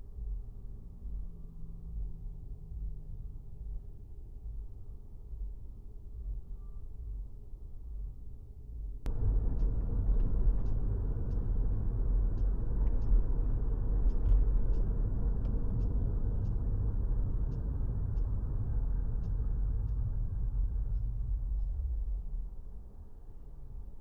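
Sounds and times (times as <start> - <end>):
faint light ticks: 9.0 - 22.4
car driving rumble: 9.0 - 24.0.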